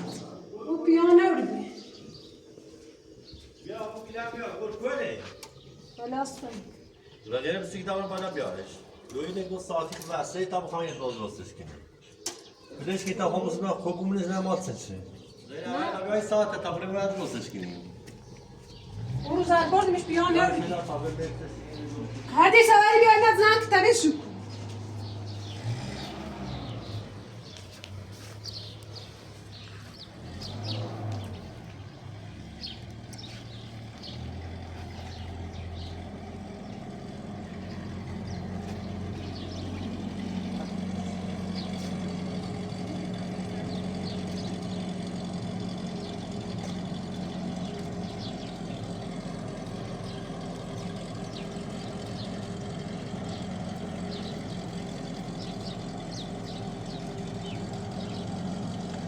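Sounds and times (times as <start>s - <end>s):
birds chirping: 0.0s - 59.0s
vehicle engine running: 12.8s - 59.0s.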